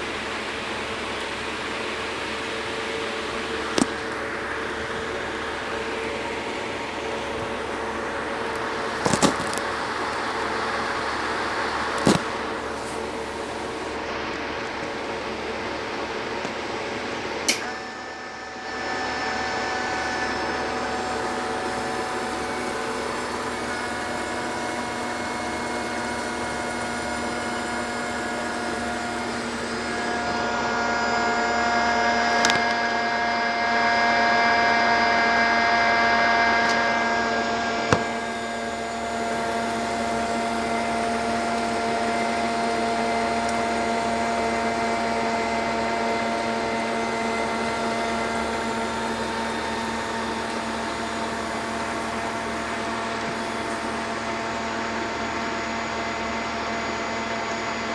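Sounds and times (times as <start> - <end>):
fountain pump humming: 0.0 - 57.9
falling water rushing: 19.8 - 32.8.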